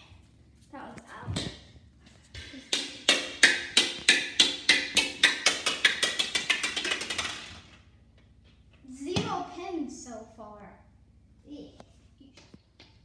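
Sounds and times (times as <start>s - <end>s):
plastic ball bouncing on hard floor: 1.3s - 1.7s, 2.3s - 7.8s.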